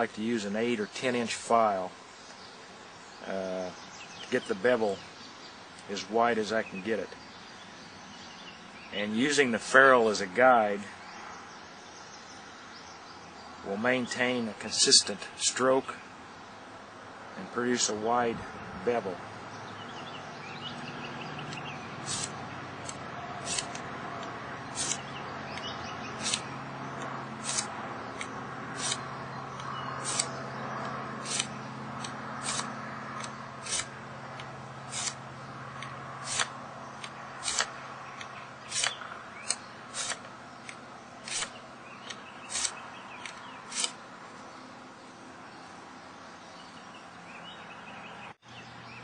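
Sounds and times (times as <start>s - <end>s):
steel file rasping on metal: 22.0s - 22.3s, 23.4s - 23.8s, 24.8s - 25.0s, 26.2s - 26.4s, 27.4s - 27.7s, 28.8s - 29.0s, 30.0s - 30.3s, 31.2s - 31.5s, 32.4s - 32.7s, 33.6s - 33.9s, 34.9s - 35.2s, 39.9s - 40.2s.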